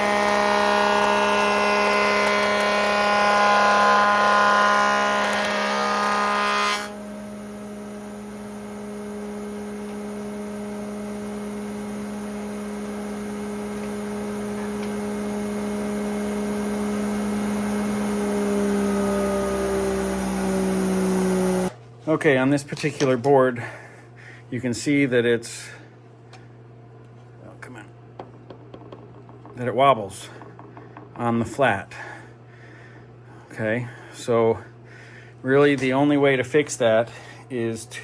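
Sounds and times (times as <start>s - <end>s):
planer humming unloaded: 0.0s - 21.8s
wood planer cutting whine: 0.0s - 21.8s.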